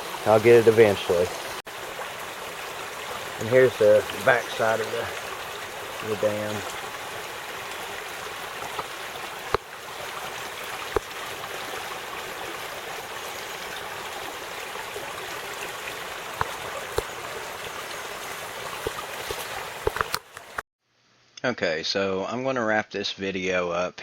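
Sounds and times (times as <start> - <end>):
creek water rushing over a dam: 0.0 - 20.6
sharp clicks: 18.9 - 20.6.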